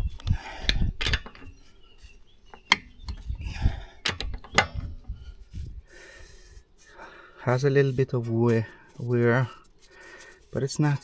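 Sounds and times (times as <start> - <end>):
rustling and knocking: 0.1 - 5.8.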